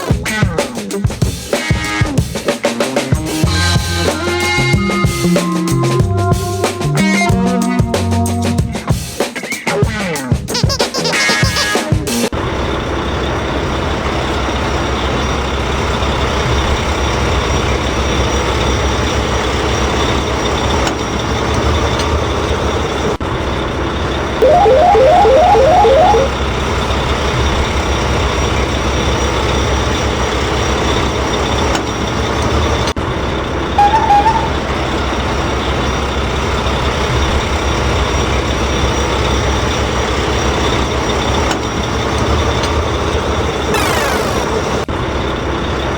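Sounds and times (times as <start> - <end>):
loud beeps: 24.4 - 26.4, 33.8 - 34.6, 43.8 - 44.8.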